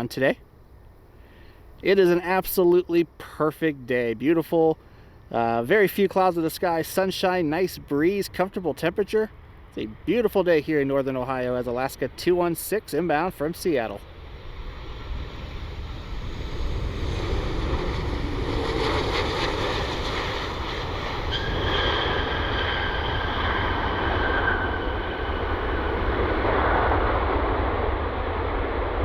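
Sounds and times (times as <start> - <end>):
high engine whine: 0.0 - 29.0
jet airliner passing: 0.0 - 29.0
wind rumble on microphone: 14.0 - 29.0.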